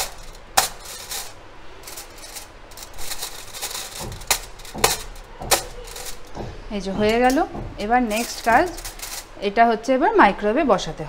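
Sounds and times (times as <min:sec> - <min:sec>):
foil crinkling: 0:00.0 - 0:06.4, 0:08.0 - 0:09.4
fork poking through foil: 0:00.0 - 0:06.4, 0:07.1 - 0:09.4.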